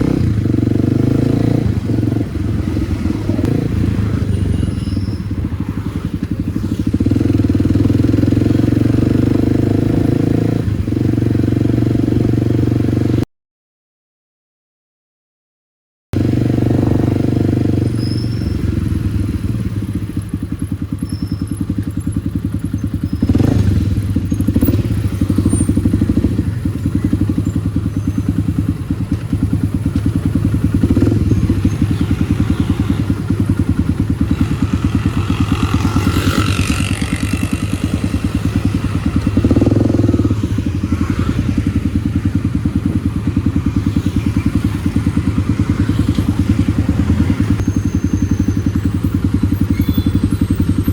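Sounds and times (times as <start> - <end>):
motorcycle engine running: 0.0 - 13.2, 16.2 - 50.9.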